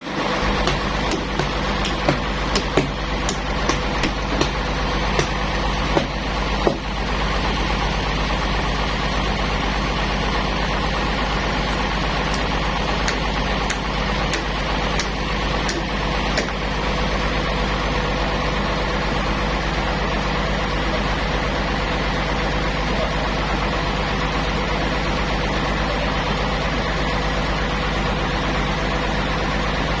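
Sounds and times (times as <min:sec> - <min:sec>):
sawmill motor hum: 0:00.0 - 0:30.0
sharp clicks and knocks: 0:12.3 - 0:16.6.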